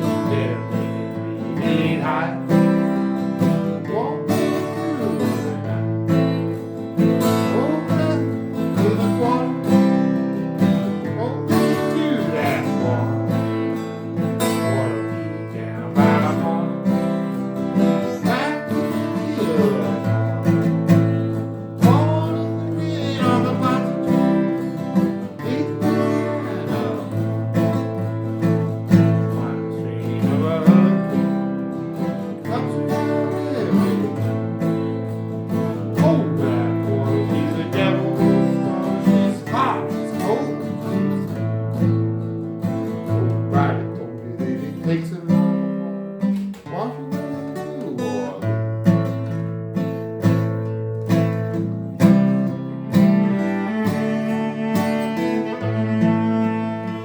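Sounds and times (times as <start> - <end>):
acoustic guitars strumming: 0.0 - 57.0
viola sliding melody: 52.7 - 57.0.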